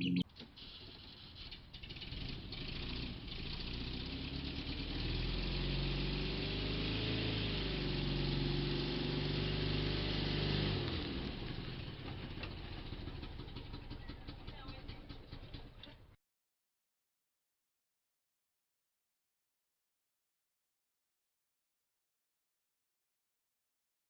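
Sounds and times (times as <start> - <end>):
van engine running: 0.7 - 16.1.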